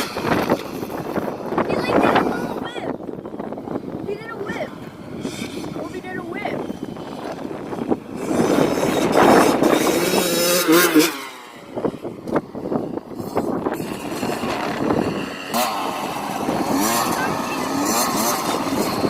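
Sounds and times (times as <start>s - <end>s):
dirt bike engine revving past: 4.0s - 19.0s.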